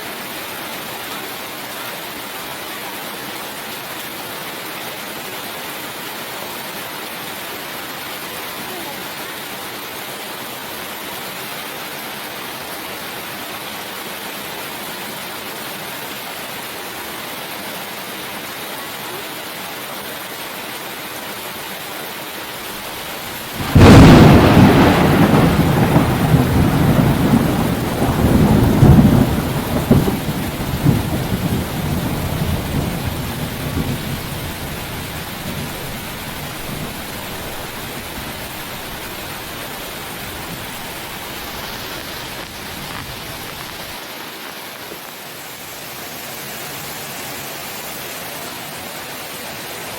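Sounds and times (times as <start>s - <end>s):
steady rain: 0.0s - 49.9s
thunderclap rumbling: 23.1s - 44.0s.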